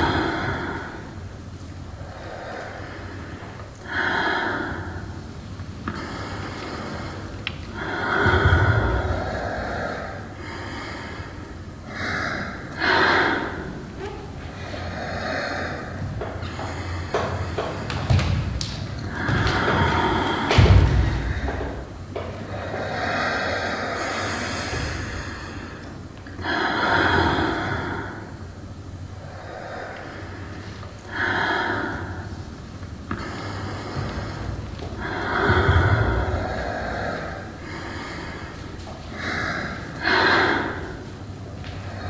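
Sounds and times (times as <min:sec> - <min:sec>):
heavy rushing breath: 0:00.0 - 0:28.5, 0:29.1 - 0:42.0.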